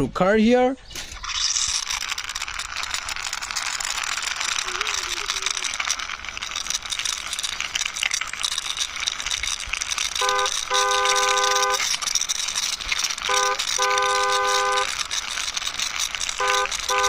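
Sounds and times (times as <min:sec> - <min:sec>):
plastic toy truck rattling: 0:00.9 - 0:17.0
toy horn tooting: 0:03.6 - 0:06.6, 0:10.0 - 0:17.0.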